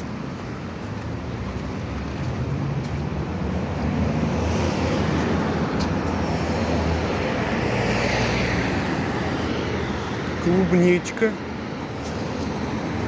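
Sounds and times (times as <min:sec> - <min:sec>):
traffic rumble: 0:00.0 - 0:13.0
tyre hiss of passing vehicle: 0:03.8 - 0:10.4.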